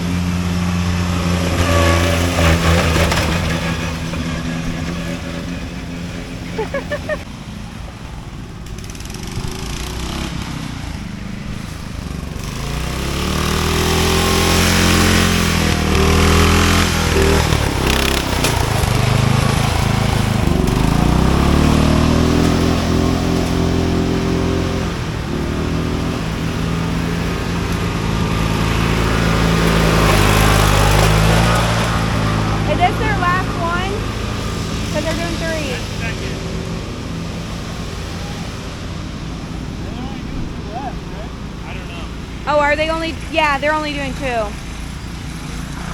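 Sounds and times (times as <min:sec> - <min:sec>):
lawn mower engine revving: 0:00.0 - 0:45.9.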